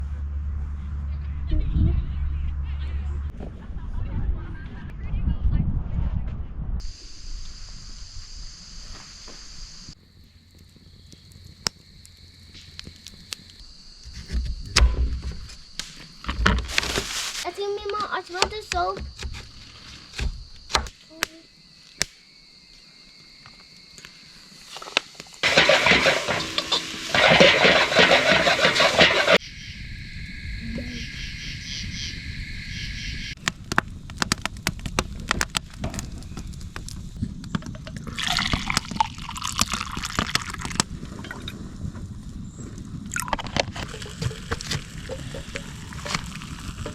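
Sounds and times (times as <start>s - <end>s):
water pouring: 38.0s - 41.6s, 43.1s - 46.9s.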